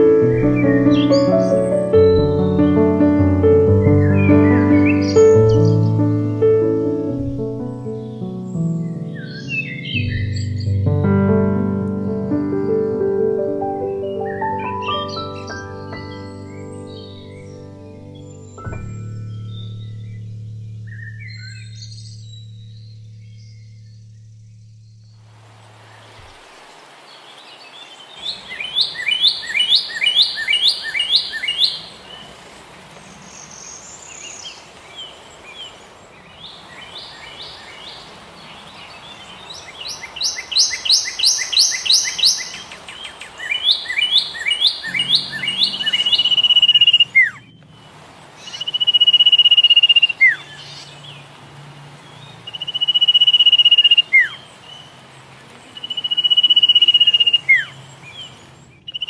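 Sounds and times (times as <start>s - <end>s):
birds chirping trills: 0.0s - 59.0s
bird whistled note: 44.4s - 47.4s, 48.5s - 50.4s, 52.5s - 54.3s, 55.8s - 57.7s.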